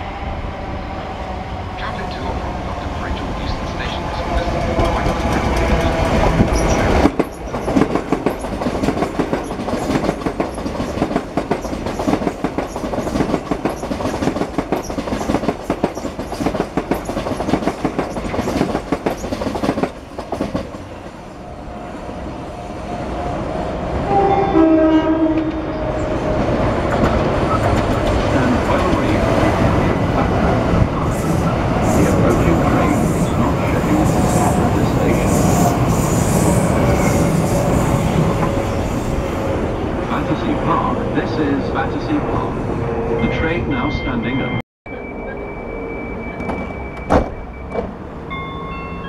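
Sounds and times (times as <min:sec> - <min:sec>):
train running noise: 0:00.0 - 0:49.0
train wheels clattering over rails: 0:04.3 - 0:20.9
train horn blast: 0:24.0 - 0:26.0.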